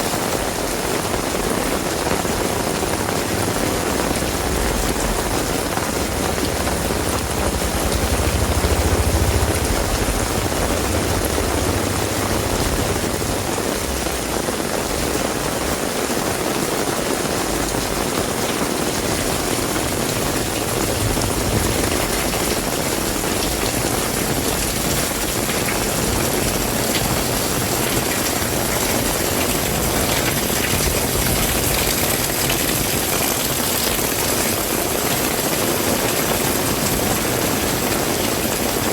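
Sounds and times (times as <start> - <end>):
heavy rain hissing: 0.0 - 38.9
low rumble: 2.8 - 15.2.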